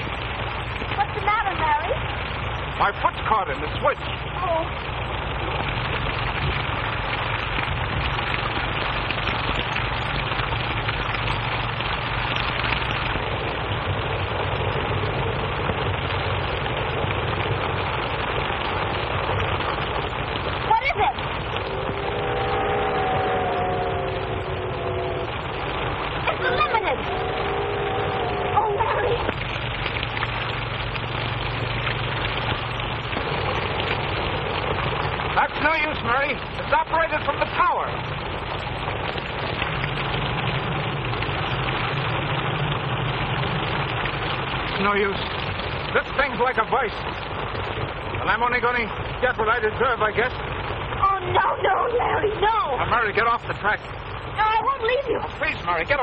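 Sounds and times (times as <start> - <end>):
film soundtrack hiss and crackle: 0.0 - 56.0
low hum: 0.0 - 56.0
train rumbling and clattering on track: 20.6 - 47.4.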